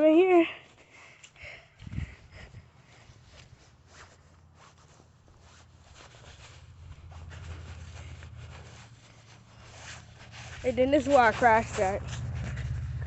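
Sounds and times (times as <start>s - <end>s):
low steady rumble: 1.6s - 13.0s
phone rubbing and rustling: 3.2s - 13.0s.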